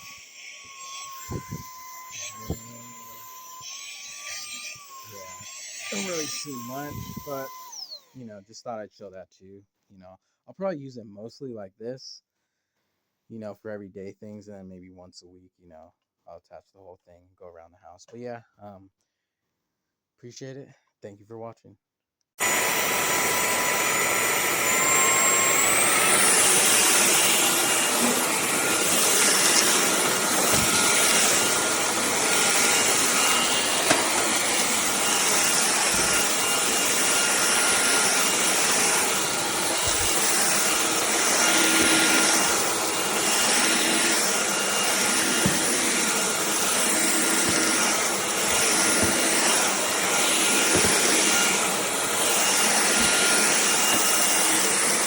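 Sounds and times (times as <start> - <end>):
vacuum cleaner motor whine: 0.0 - 8.2, 22.4 - 55.0.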